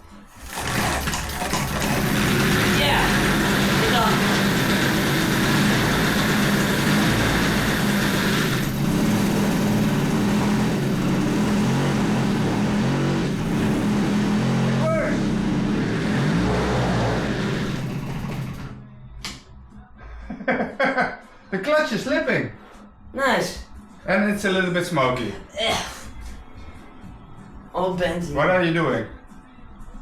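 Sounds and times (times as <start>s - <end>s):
moped engine running: 0.3s - 18.9s.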